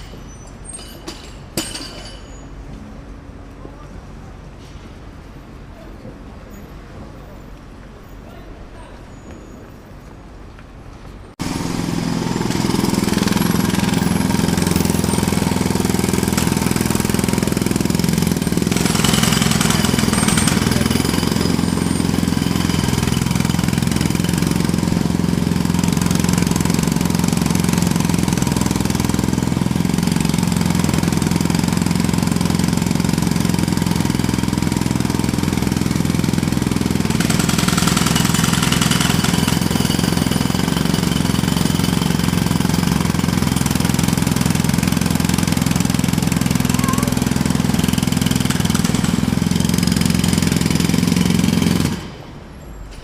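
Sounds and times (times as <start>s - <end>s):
jackhammer hammering: 0.8s - 2.4s, 11.4s - 52.3s.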